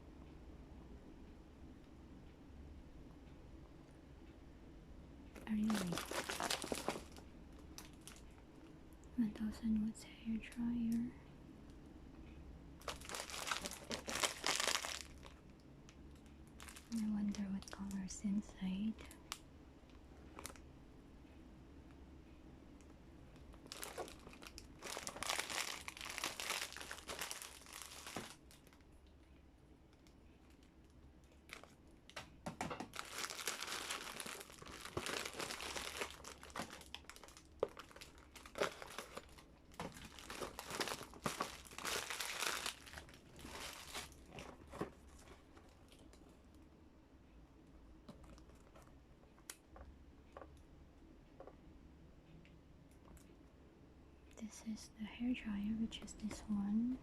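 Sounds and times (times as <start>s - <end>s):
packaging crinkling and tearing: 5.4s - 7.2s, 12.8s - 15.4s, 16.5s - 17.9s, 23.6s - 28.8s, 31.4s - 31.8s, 32.8s - 46.3s.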